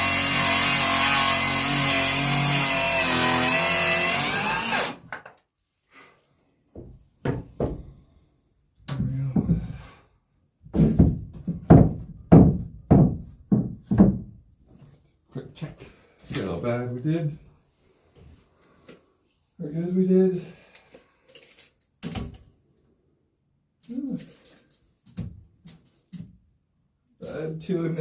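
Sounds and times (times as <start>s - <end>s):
circular saw cutting wood: 0.0s - 5.0s.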